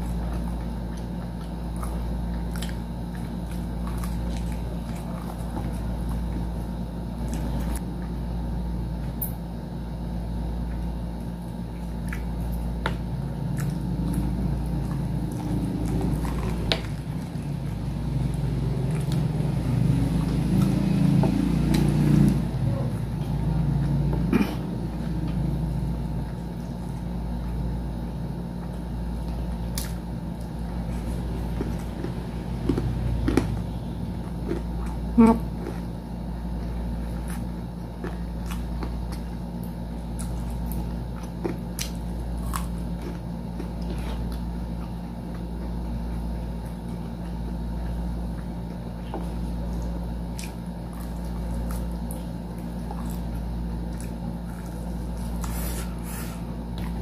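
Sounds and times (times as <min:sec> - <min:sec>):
chewing and biting food: 0:00.0 - 0:57.0
steady low hum: 0:00.0 - 0:57.0
person humming: 0:35.2 - 0:35.5.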